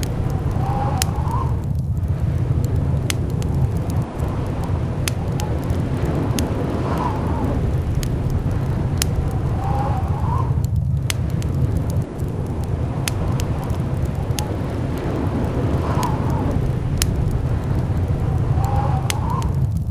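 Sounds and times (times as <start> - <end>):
blizzard wind whistling: 0.0 - 19.9
sharp clicks and crackles: 0.0 - 19.9.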